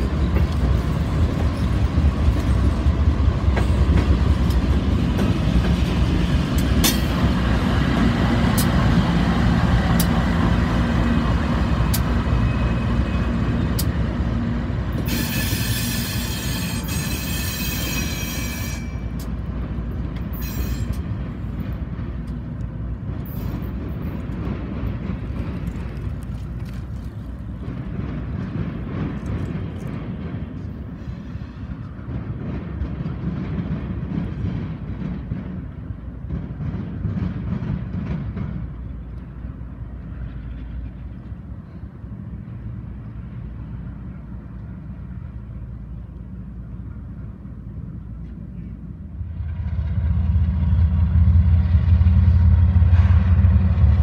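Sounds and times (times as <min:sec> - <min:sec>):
wheels clicking over rail joints: 0:00.0 - 0:12.4, 0:13.5 - 0:43.4
distant freight train rumble: 0:00.0 - 0:54.0
freight train rumbling past: 0:00.0 - 0:54.0
high wheel squeal: 0:12.3 - 0:13.4, 0:15.0 - 0:19.2, 0:20.4 - 0:21.0.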